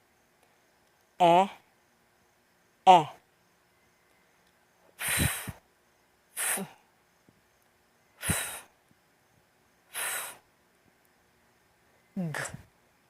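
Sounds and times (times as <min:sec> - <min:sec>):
person making breathy f hisses: 0:04.9 - 0:05.6, 0:06.3 - 0:06.8, 0:08.2 - 0:08.8, 0:09.9 - 0:10.5.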